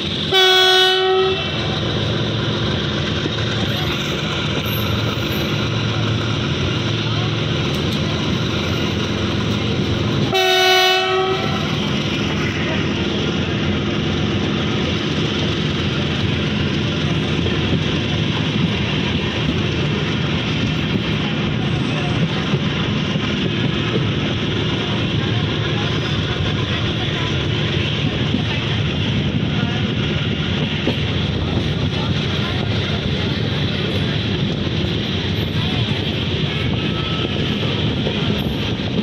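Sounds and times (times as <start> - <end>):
train wheels on rails: 0.0 - 39.0
train horn blast: 0.3 - 1.6, 10.3 - 11.8.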